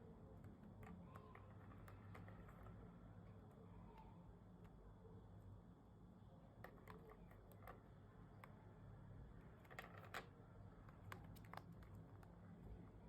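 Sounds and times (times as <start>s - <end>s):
faint clicks and taps: 9.6s - 12.4s.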